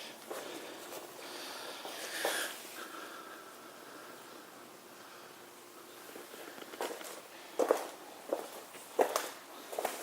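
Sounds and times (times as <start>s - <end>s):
footsteps of person walking: 0.2s - 2.4s, 6.3s - 10.0s.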